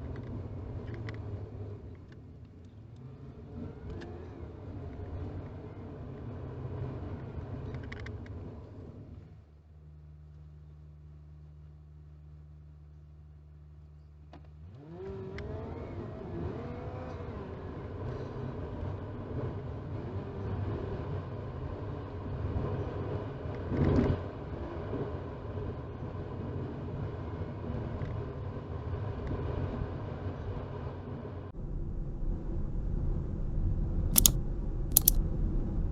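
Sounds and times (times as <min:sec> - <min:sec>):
car engine accelerating: 0:14.6 - 0:20.5.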